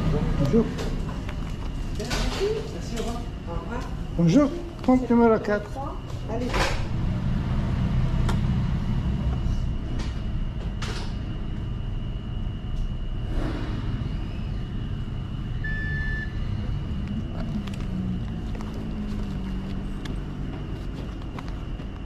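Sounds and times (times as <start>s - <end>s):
engine idling: 6.8s - 21.9s
short electronic beep: 15.6s - 16.4s.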